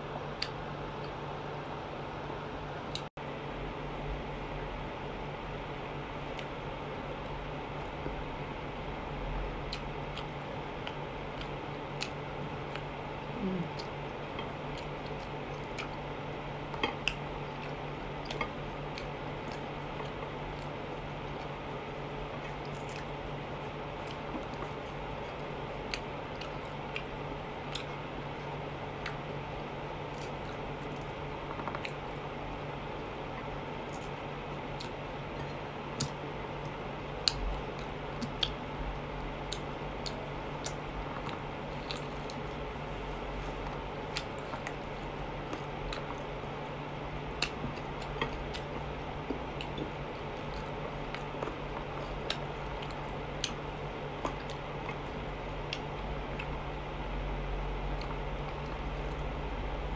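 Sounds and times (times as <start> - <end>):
steady low hum: 0.0 - 59.9
wet chewing and lip-smacking: 9.7 - 29.4, 33.3 - 38.7, 39.5 - 42.7, 43.4 - 56.6, 57.9 - 59.3.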